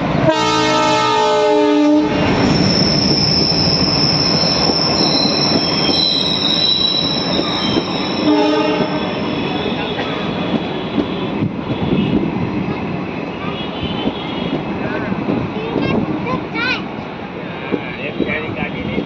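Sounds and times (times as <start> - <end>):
passing train rumble: 0.0 - 19.0
train horn: 0.2 - 2.3, 8.2 - 12.2
steel wheels squealing on rails: 2.2 - 11.9.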